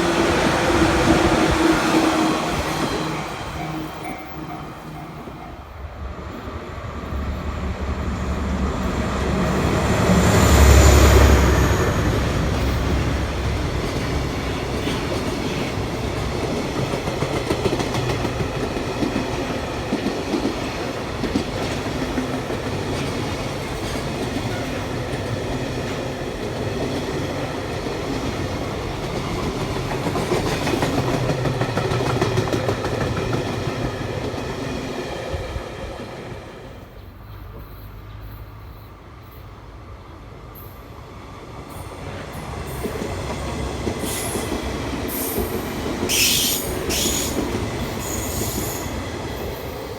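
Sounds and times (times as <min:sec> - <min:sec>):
train wheels clicking over rails: 0:08.2 - 0:36.2, 0:41.7 - 0:49.9.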